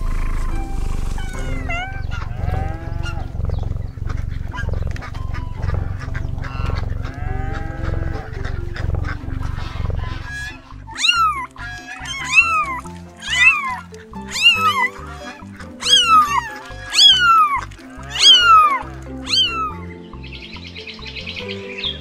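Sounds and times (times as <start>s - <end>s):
low pulsing rumble: 0.0s - 19.5s
background music: 0.0s - 22.0s
cat meowing: 1.1s - 3.3s, 10.2s - 19.8s.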